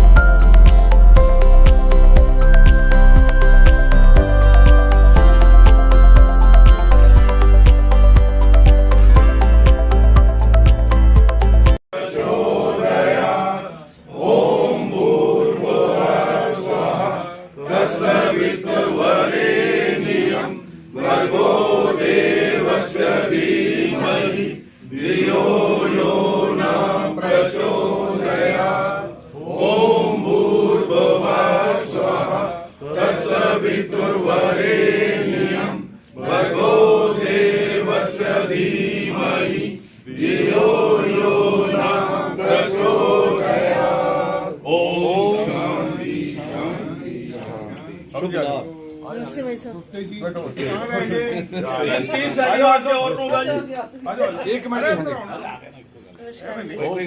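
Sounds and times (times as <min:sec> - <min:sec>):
voices chanting mantras: 0:12.0 - 0:48.4.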